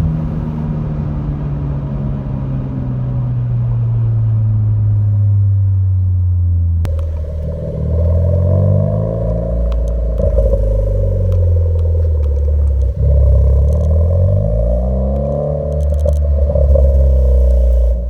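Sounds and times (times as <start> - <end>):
car engine through exhaust: 0.0 - 18.0.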